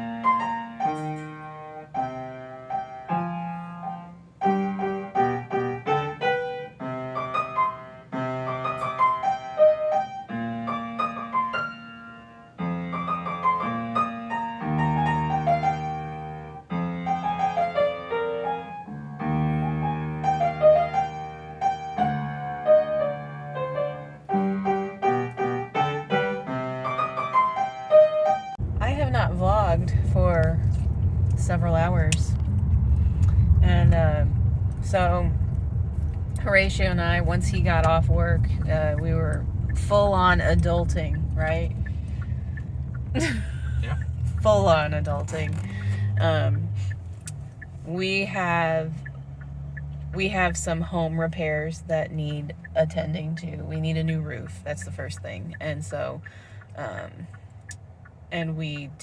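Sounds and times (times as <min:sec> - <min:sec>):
solo piano music: 0:00.0 - 0:47.9.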